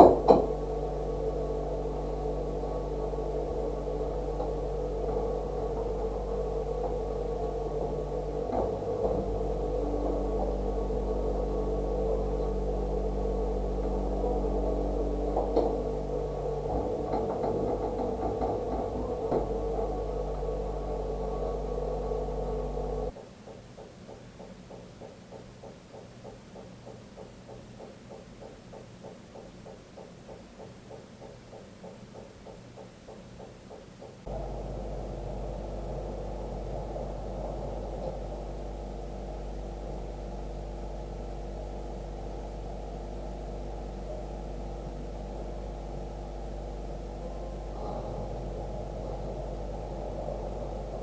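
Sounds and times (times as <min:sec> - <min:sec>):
steady hum of held tones: 0:00.0 - 0:23.2, 0:33.6 - 0:51.0.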